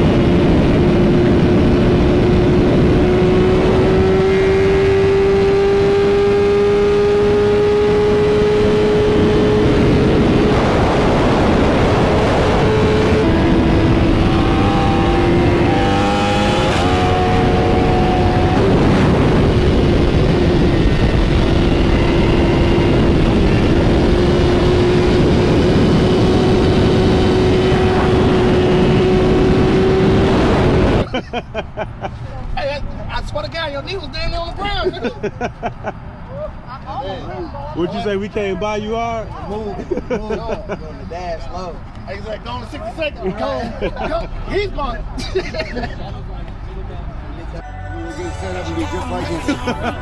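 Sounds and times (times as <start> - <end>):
motorcycle engine cruising: 0.0 - 31.0
wind noise: 0.0 - 31.2
road noise: 0.0 - 50.0.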